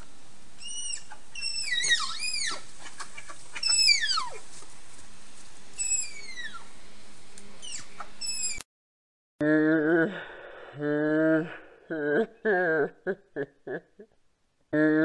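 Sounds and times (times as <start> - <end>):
animal's high whistled calls: 0.6 - 2.6, 3.6 - 4.4, 5.8 - 6.7, 7.6 - 8.6.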